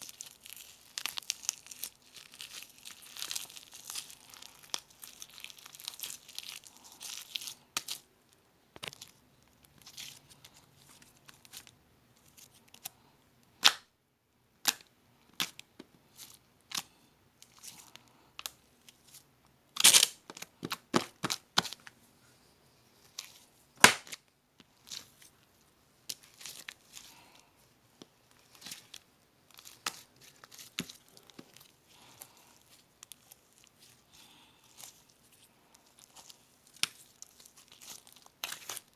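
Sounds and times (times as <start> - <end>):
slime crackling and popping: 0.0 - 6.6, 23.8 - 24.2.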